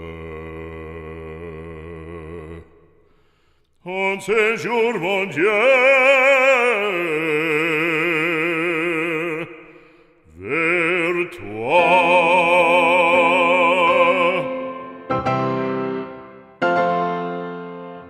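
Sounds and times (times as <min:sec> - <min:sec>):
operatic singing with vibrato: 0:03.8 - 0:18.0.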